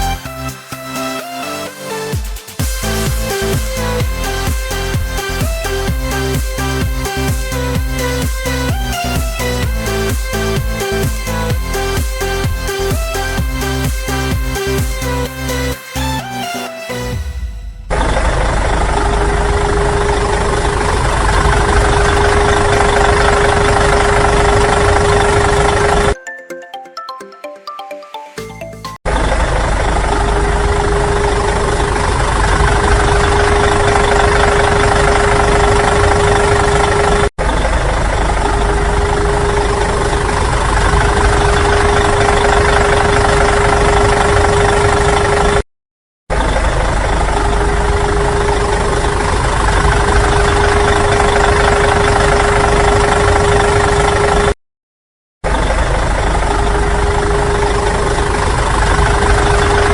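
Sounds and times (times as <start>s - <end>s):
vehicle engine running: 17.2s - 26.2s, 29.1s - 45.6s, 46.3s - 54.5s, 55.4s - 59.9s.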